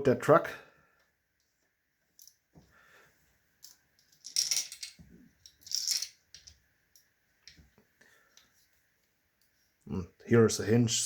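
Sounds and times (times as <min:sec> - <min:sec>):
plastic bricks clattering: 0:04.2 - 0:06.6.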